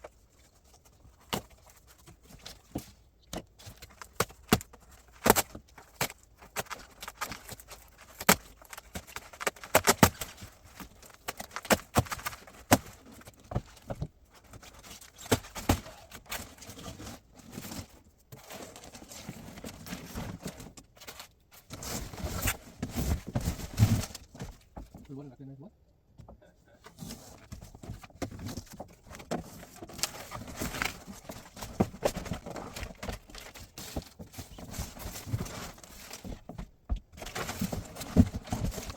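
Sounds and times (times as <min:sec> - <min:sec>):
knocks and taps of unpacking: 0:00.0 - 0:25.1, 0:26.2 - 0:38.9
soft rustling: 0:26.8 - 0:38.9.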